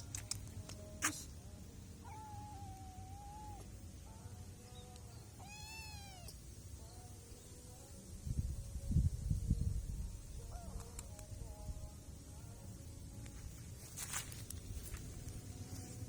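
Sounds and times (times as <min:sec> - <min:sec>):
kitten meowing: 0:02.0 - 0:03.6, 0:05.4 - 0:06.4.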